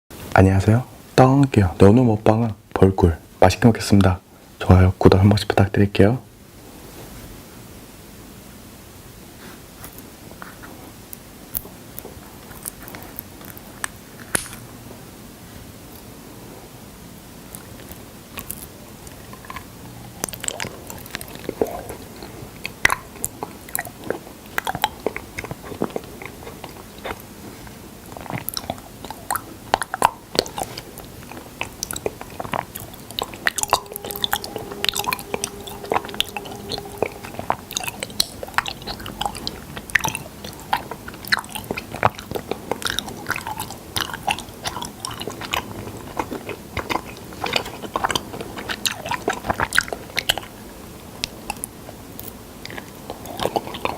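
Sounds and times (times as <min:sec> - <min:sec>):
chewing sticky honey: 0:09.9 - 0:14.0, 0:17.5 - 0:53.9.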